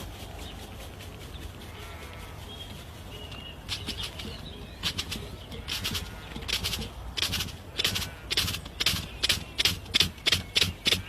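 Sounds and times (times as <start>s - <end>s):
flapping wings: 0.0s - 11.0s
faint short bird calls: 1.4s - 7.0s.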